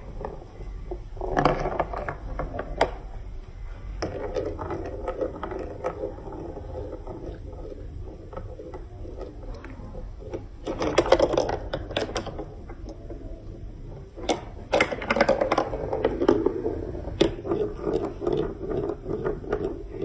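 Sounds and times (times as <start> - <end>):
low rolling rumble: 0.0 - 20.0
marbles clicking and rattling: 4.0 - 20.0.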